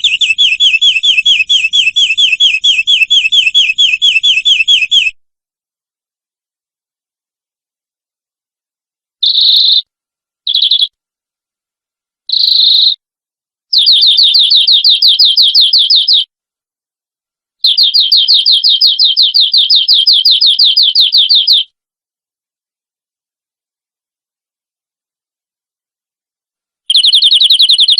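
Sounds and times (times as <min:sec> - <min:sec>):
canary singing: 0:00.0 - 0:05.2, 0:09.2 - 0:09.9, 0:10.5 - 0:11.0, 0:12.3 - 0:13.0, 0:13.7 - 0:16.3, 0:17.6 - 0:21.8, 0:26.9 - 0:27.9.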